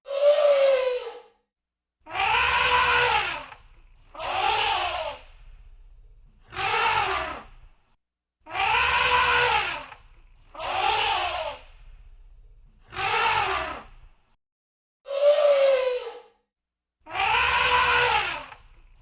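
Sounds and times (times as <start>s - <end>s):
elephant trumpeting: 2.1s - 5.2s, 6.5s - 7.5s, 8.5s - 11.6s, 12.9s - 13.9s, 17.1s - 18.6s.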